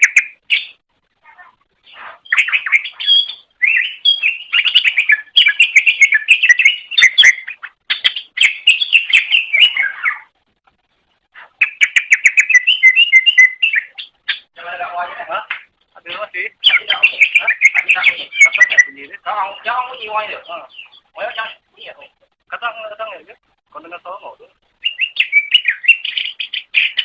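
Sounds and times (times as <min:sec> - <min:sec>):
bird singing chattering notes: 0:02.2 - 0:10.3, 0:11.6 - 0:14.6, 0:16.1 - 0:21.7, 0:24.8 - 0:27.0.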